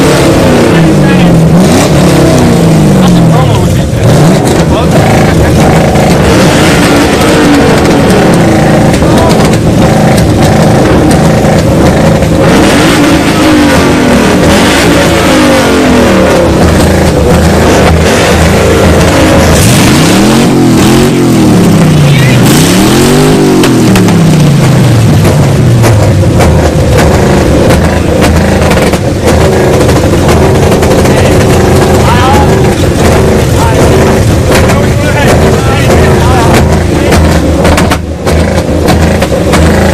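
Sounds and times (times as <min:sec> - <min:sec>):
car engine revving: 0:00.0 - 0:39.9
exhaust pops and crackles: 0:00.0 - 0:39.9.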